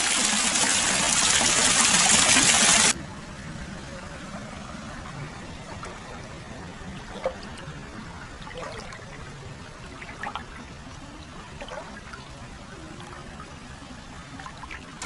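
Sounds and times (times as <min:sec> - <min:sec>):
water trickling and pouring: 0:00.0 - 0:03.0, 0:05.6 - 0:13.7
water gurgles: 0:00.0 - 0:15.0.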